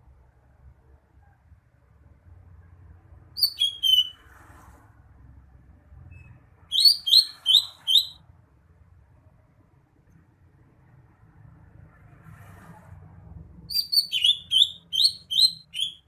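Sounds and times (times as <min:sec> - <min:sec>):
bird singing whistled notes: 0:03.4 - 0:04.2, 0:06.1 - 0:08.2, 0:13.7 - 0:16.0.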